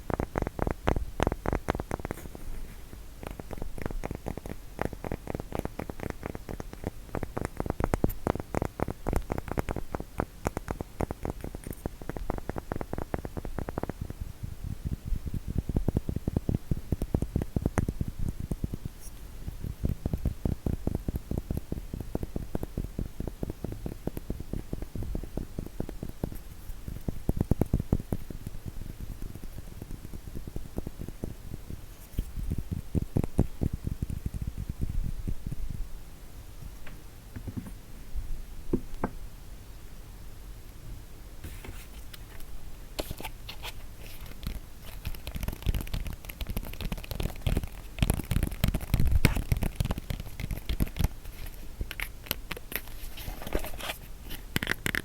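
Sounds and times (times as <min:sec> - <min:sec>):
fast tapping on wooden block: 0:00.0 - 0:02.2, 0:03.2 - 0:14.2, 0:15.8 - 0:18.9, 0:19.8 - 0:35.0, 0:44.2 - 0:51.1.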